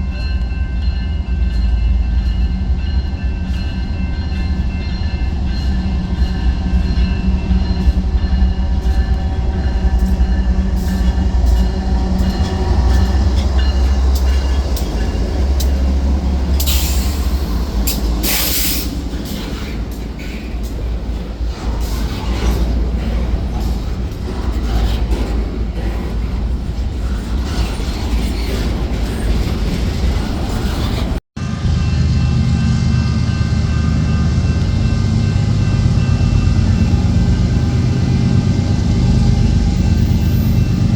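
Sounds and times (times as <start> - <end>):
train rumbling past: 0.0 - 40.9
wheels clicking over rail joints: 9.1 - 31.2.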